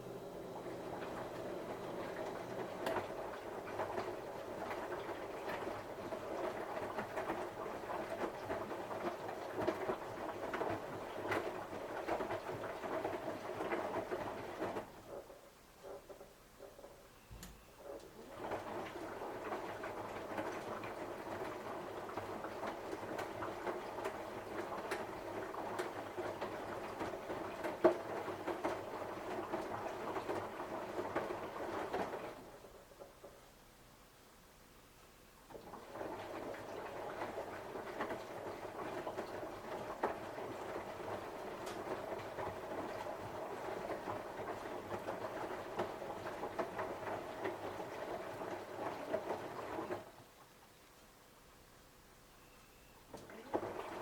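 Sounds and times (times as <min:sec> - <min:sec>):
washing machine drum turning: 0:00.0 - 0:15.0
washing machine drum sloshing: 0:00.0 - 0:17.2, 0:17.8 - 0:33.6, 0:35.5 - 0:50.4, 0:53.0 - 0:54.0
knocks and clatters: 0:14.8 - 0:18.2.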